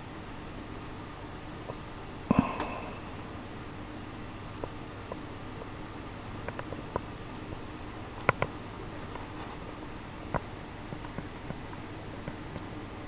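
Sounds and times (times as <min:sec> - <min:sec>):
steady background hiss: 0:00.0 - 0:13.0
faint clicks and taps: 0:04.6 - 0:05.7, 0:06.4 - 0:12.8.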